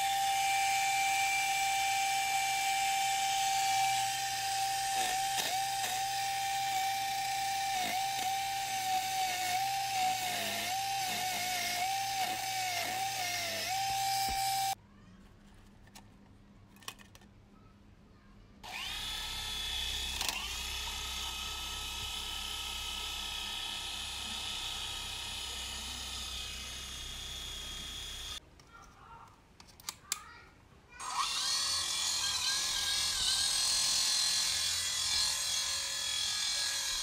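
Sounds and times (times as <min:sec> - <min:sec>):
small electric motor whining: 0:00.0 - 0:14.8, 0:18.6 - 0:28.4, 0:31.0 - 0:37.0.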